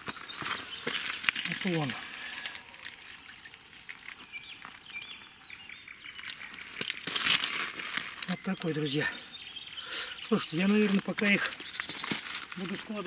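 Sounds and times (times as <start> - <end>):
bird chirping: 0.0 - 7.2, 8.1 - 13.0
rustling and slapping: 10.6 - 13.0.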